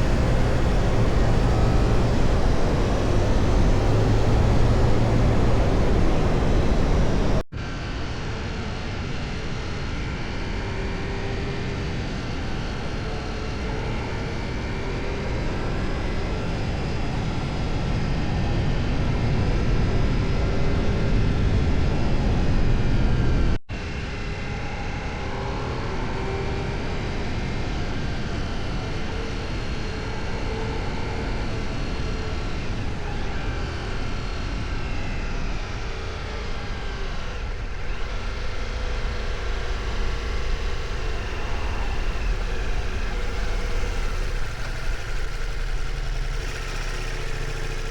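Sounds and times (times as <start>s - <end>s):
motorcycle engine running: 0.0s - 7.4s, 28.4s - 47.9s.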